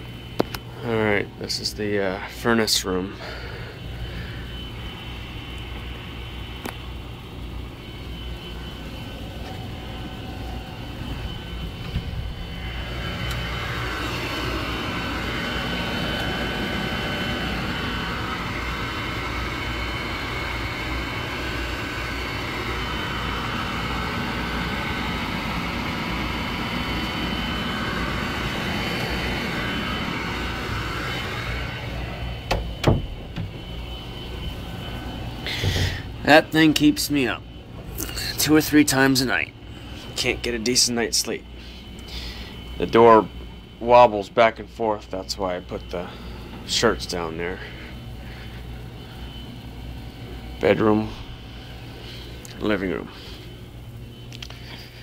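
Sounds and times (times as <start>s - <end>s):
furnace humming: 0.0s - 55.0s
sharp knocks: 32.5s - 33.6s.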